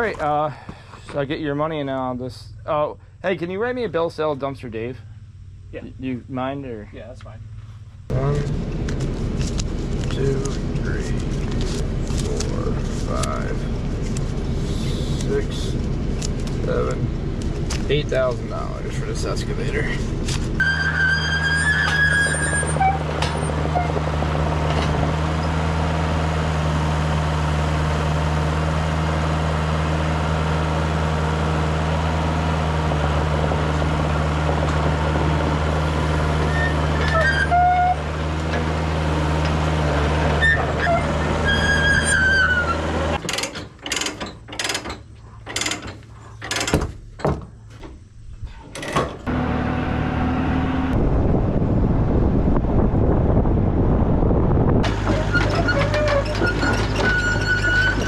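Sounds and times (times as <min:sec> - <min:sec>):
diesel engine running: 0:00.0 - 0:43.3, 0:49.2 - 0:58.0
brief high squeals: 0:20.6 - 0:23.9
knocks and thumps: 0:43.2 - 0:48.0.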